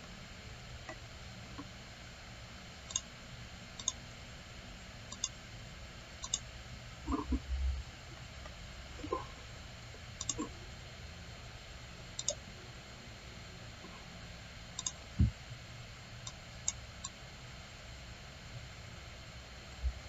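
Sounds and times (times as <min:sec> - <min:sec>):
low hum: 0:00.0 - 0:20.0
mouse buttons clicking: 0:06.2 - 0:06.4, 0:10.2 - 0:10.5, 0:12.2 - 0:12.4, 0:14.8 - 0:15.0
dull low thump: 0:15.2 - 0:15.4.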